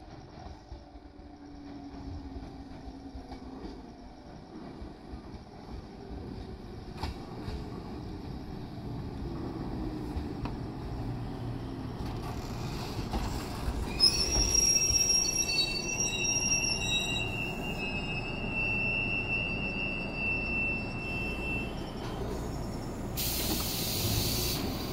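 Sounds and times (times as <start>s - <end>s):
train wheels rumbling: 0.0s - 24.9s
high brake squeal: 12.2s - 24.9s.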